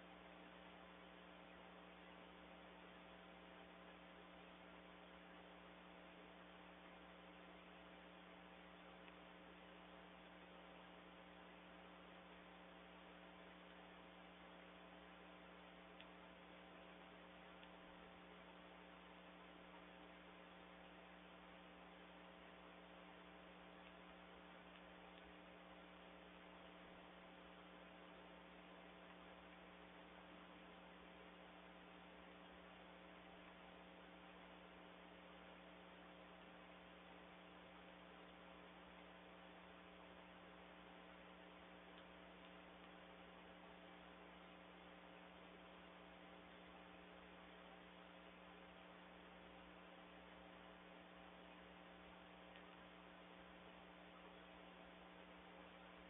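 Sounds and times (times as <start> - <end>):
faint electrical hum with hiss: 0.0 - 56.0.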